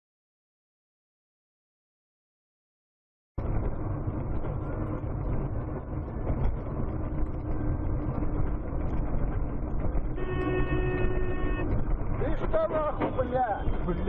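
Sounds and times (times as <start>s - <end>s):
muffled vehicle road rumble: 3.4s - 14.0s.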